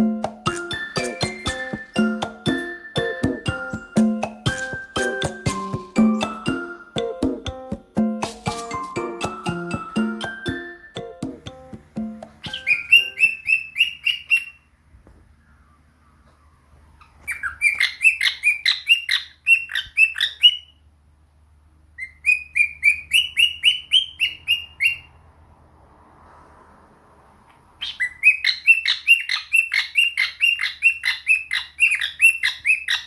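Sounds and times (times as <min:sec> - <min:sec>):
parrot chirping: 0:00.0 - 0:07.4, 0:11.6 - 0:14.8, 0:17.0 - 0:20.8, 0:22.0 - 0:25.2, 0:27.8 - 0:33.0.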